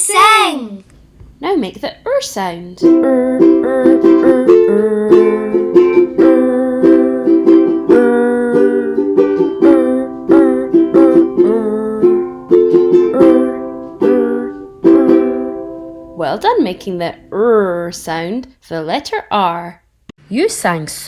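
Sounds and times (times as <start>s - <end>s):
ukulele strumming: 2.8s - 17.4s.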